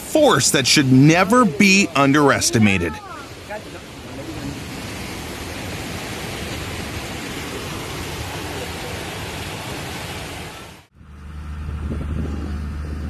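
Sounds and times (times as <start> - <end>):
rushing water: 0.0 - 10.9
low engine hum: 3.1 - 13.0.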